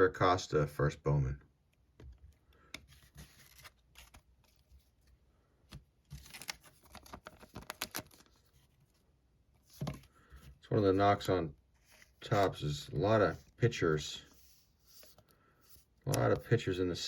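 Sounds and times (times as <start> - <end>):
cards clicking and rustling: 2.6 - 8.9.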